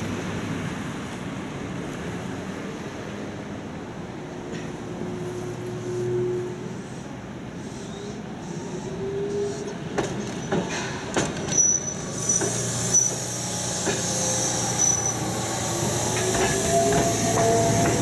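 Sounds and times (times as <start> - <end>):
streetcar wheels squealing on rail: 5.2 - 18.0.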